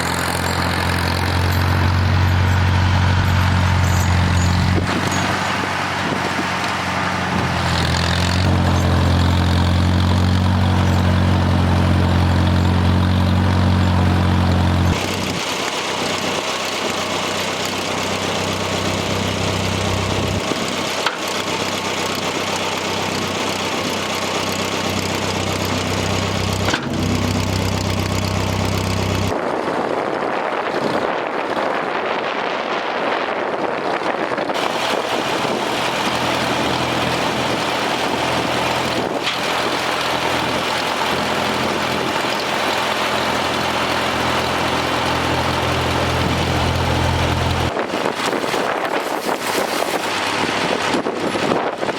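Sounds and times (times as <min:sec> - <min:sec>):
tractor engine running: 0:00.0 - 0:32.6, 0:33.5 - 0:51.9
wind on microphone: 0:04.6 - 0:06.6, 0:28.5 - 0:35.6, 0:47.6 - 0:51.9.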